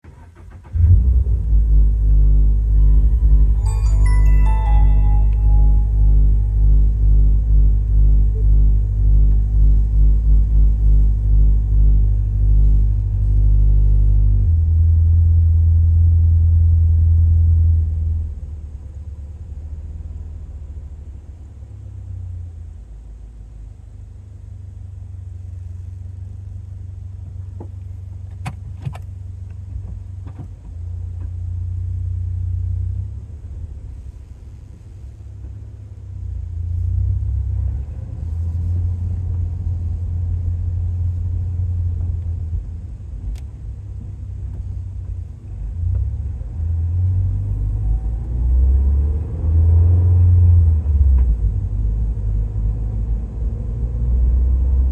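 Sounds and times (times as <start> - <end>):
deep car exhaust drone: 0.7 - 54.9.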